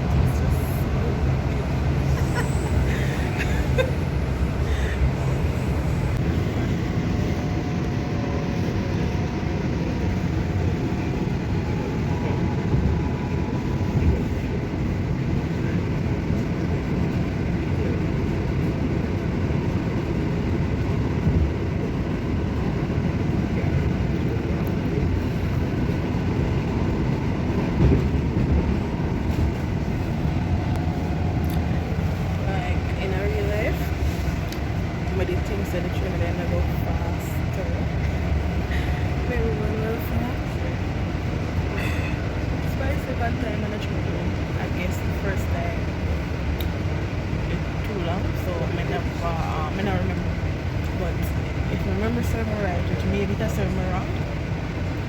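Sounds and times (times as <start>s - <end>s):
faint whine: 0.0s - 14.6s
train car rumbling: 0.0s - 55.0s.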